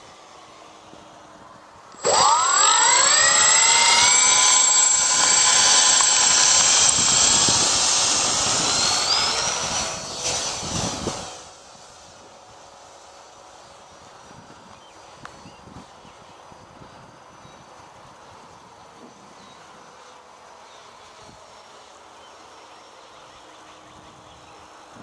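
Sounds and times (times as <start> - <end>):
model plane motors whining: 0.0 - 25.0.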